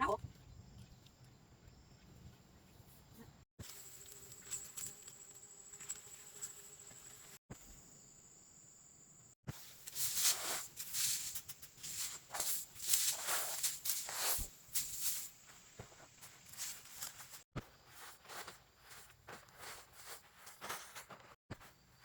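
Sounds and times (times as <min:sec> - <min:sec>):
high insect drone: 0:03.6 - 0:14.1
plants swishing and rustling: 0:09.5 - 0:21.4.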